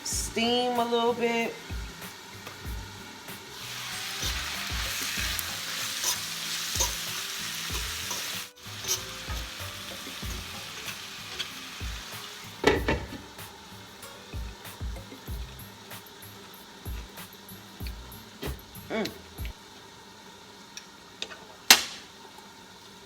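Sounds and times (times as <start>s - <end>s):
asparagus sizzling in a frying pan: 0.0s - 23.0s
stirring: 4.0s - 11.6s.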